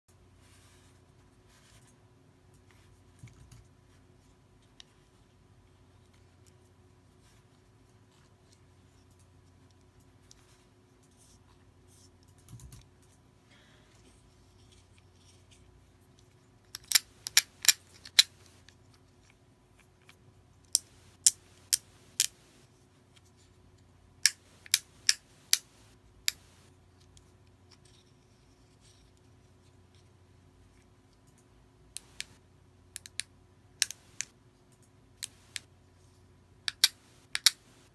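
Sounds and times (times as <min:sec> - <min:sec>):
fidget cube clicking: 0:16.7 - 0:18.5, 0:20.7 - 0:22.4, 0:36.7 - 0:37.7.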